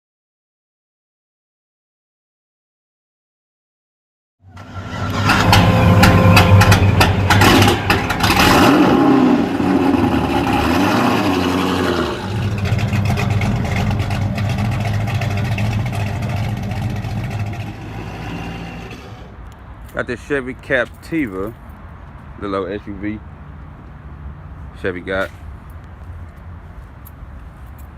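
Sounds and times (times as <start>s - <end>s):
car engine starting and idling: 4.5s - 19.5s
sharp clicks and rattles: 5.1s - 8.6s.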